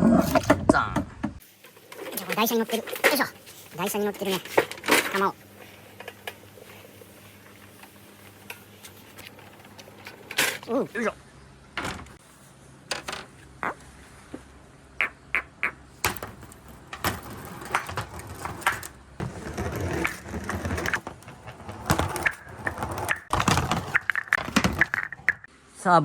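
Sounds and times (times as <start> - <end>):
balls rolling on wooden track: 12.9 - 13.8, 16.0 - 25.5
balls clicking together: 15.6 - 25.5.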